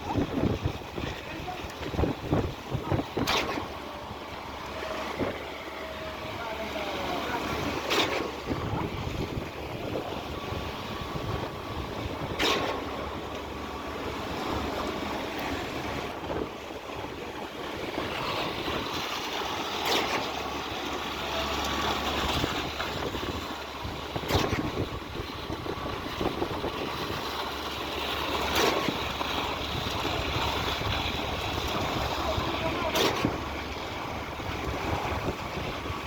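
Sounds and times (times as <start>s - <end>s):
wind noise: 0.0s - 3.6s
concrete pump running: 0.0s - 36.0s.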